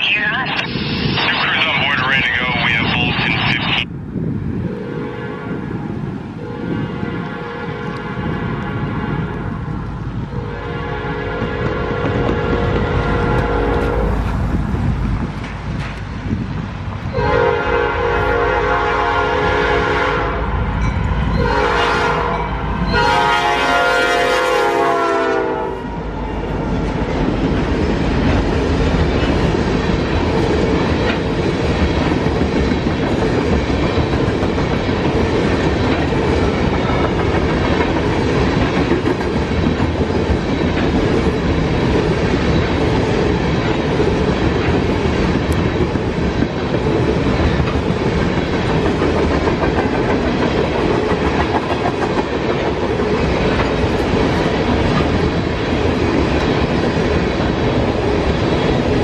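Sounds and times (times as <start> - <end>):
freight train wheels clattering: 11.1 - 17.2, 26.1 - 59.0.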